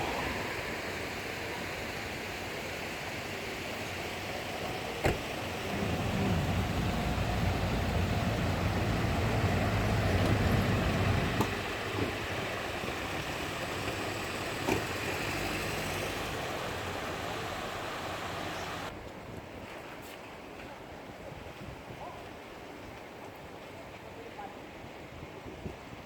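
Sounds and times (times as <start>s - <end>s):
vehicle engine passing by: 0.0s - 0.8s, 5.0s - 18.9s
street noise: 0.0s - 19.2s.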